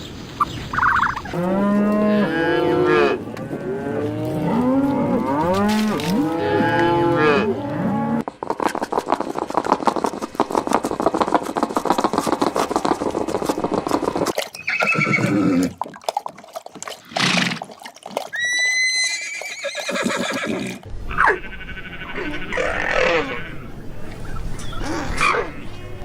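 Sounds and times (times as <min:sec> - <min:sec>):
horse hooves galloping: 0:08.2 - 0:21.4
horse whinnying and snorting: 0:14.5 - 0:15.8, 0:17.1 - 0:23.7.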